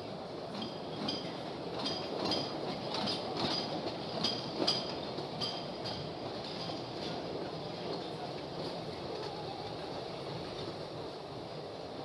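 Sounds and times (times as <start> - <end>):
train cars rumbling: 0.0 - 12.0.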